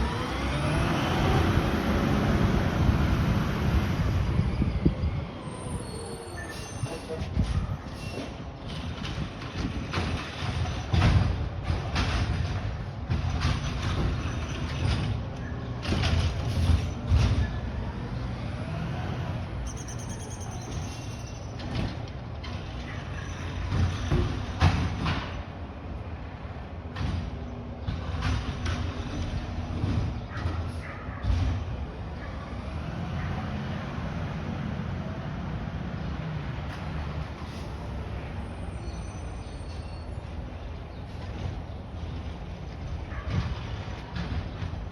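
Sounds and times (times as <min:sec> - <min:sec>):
rising whine: 0:00.0 - 0:06.3
garbage truck engine rumble: 0:00.0 - 0:44.9.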